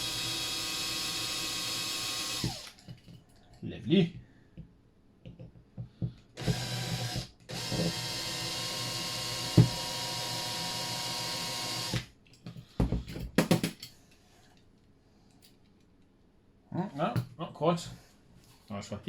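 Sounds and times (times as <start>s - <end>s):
electric drill drilling: 0.0s - 2.8s, 6.4s - 12.1s.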